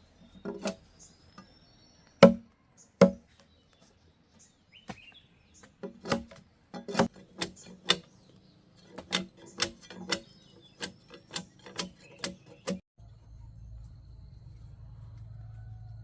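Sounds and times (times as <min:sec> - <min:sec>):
hand tool chopping blows: 0:02.2 - 0:03.2
steady low hum: 0:13.0 - 0:16.0.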